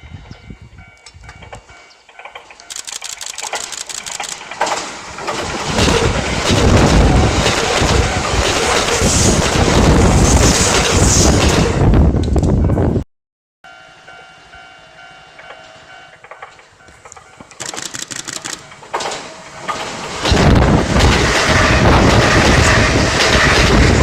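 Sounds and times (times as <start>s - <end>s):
electric train passing: 0.0s - 13.0s, 13.7s - 24.0s.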